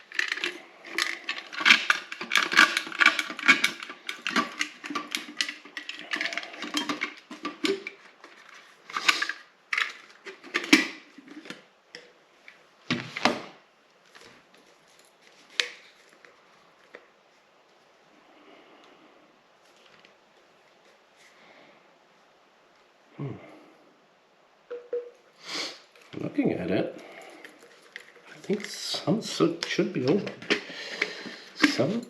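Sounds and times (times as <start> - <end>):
hand tools clicking and rattling: 0.0 - 12.0, 27.0 - 32.0.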